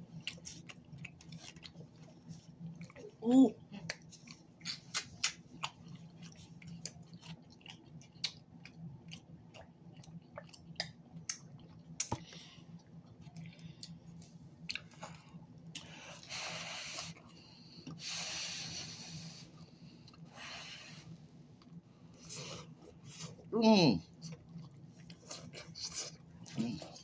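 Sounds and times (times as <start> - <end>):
close-up chewing: 0.0 - 18.1, 24.1 - 27.0
faint low hum: 0.0 - 27.0.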